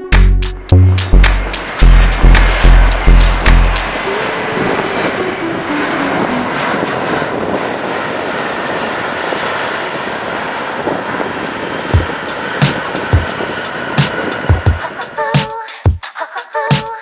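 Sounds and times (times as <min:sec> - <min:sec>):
sharp beats: 0:00.0 - 0:04.0, 0:12.0 - 0:16.0
airliner engines roaring: 0:00.0 - 0:15.9.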